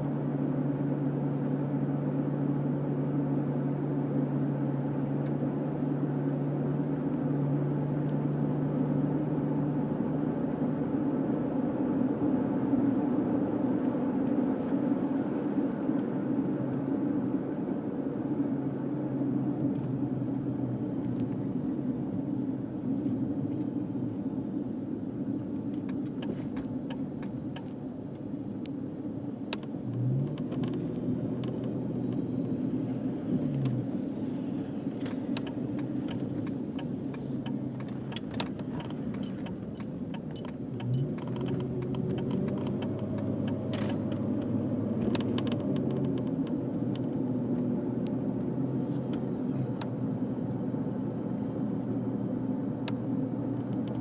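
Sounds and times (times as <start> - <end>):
car engine humming: 0.0 - 54.0
light clicks and rattles: 34.9 - 47.2.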